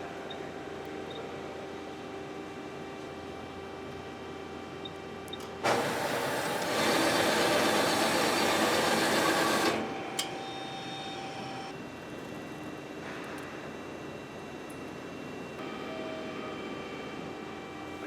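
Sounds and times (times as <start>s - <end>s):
metal-bending machine humming: 5.4s - 10.6s.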